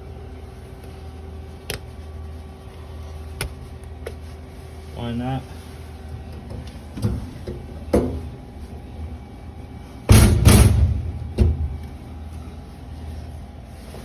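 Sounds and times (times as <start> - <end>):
copper pipes and tools clattering: 6.2 - 8.4.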